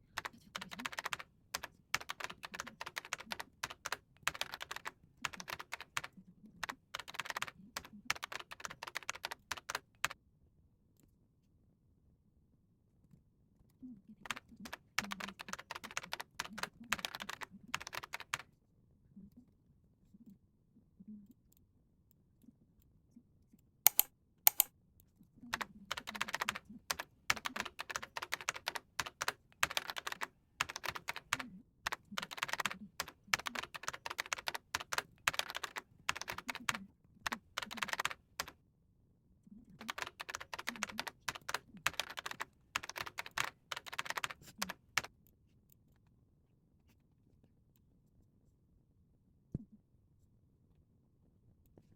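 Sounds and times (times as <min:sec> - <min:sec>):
keyboard typing clicks: 0:23.9 - 0:24.7, 0:25.6 - 0:38.5, 0:39.8 - 0:45.1.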